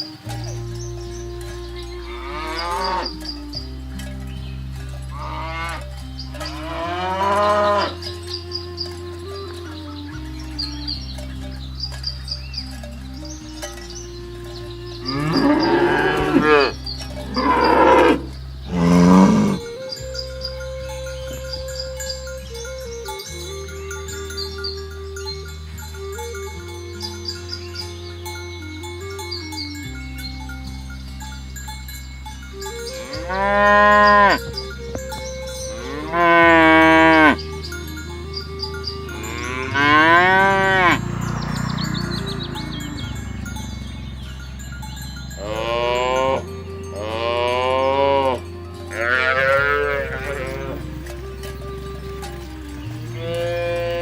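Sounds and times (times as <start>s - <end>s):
cattle mooing: 1.0s - 4.0s, 5.1s - 11.0s, 13.2s - 19.8s, 33.0s - 34.5s, 35.8s - 37.5s, 38.3s - 44.2s, 45.3s - 54.0s.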